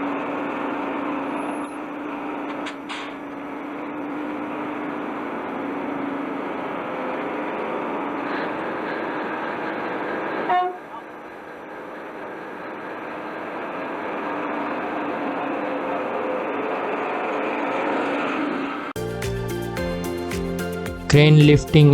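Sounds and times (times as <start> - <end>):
diesel locomotive running: 0.0 - 18.9
train horn toot: 10.5 - 11.0.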